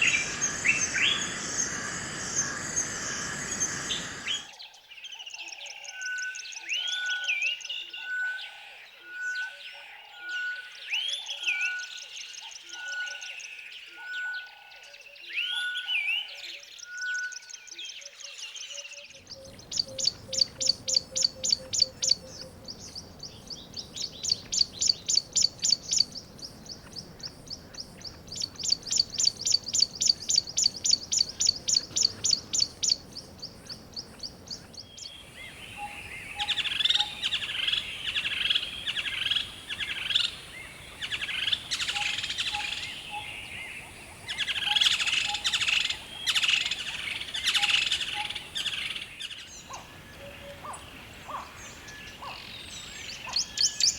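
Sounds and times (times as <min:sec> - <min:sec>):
chorus of warbling bird calls: 0:00.0 - 0:04.6, 0:19.2 - 0:53.9
bird high fast chirps: 0:19.4 - 0:33.1, 0:35.0 - 0:43.5.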